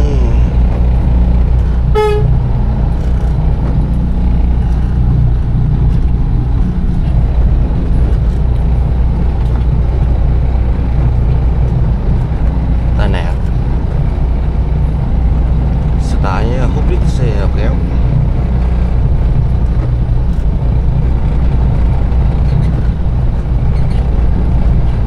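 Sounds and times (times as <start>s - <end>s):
diesel truck engine rumbling: 0.0s - 25.0s
short vehicle horn beep: 1.9s - 2.3s.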